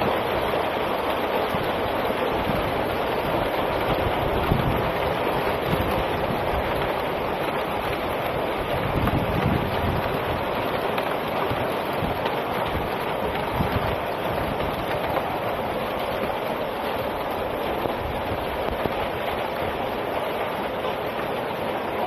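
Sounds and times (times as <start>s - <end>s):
heavy rain and hail: 0.0s - 22.0s
wind rumbling on microphone: 0.0s - 22.0s.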